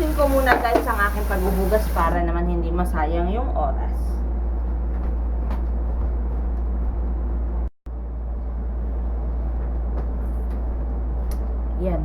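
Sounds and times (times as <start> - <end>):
kitchen tap running: 0.0 - 2.2.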